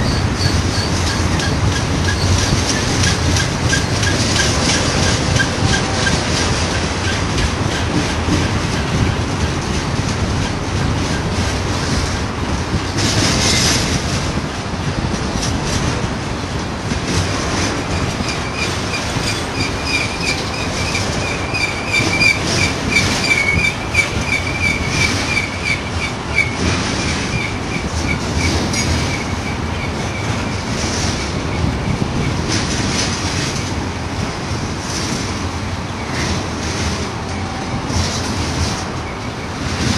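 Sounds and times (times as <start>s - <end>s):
high wheel squeal: 0.0s - 6.2s, 17.9s - 30.3s
train wheels rumbling on rail: 0.0s - 39.9s
clicking over rail joints: 0.1s - 39.9s.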